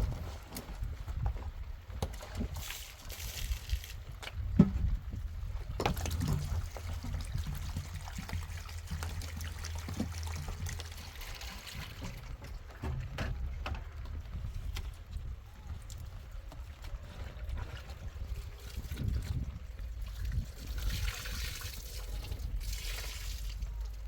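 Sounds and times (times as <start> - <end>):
water trickling: 5.8 - 12.7, 18.6 - 24.0.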